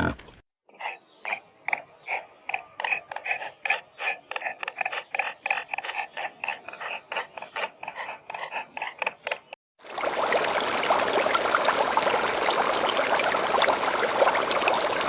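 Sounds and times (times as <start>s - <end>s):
pig grunting: 0.0s - 0.4s, 2.1s - 9.1s.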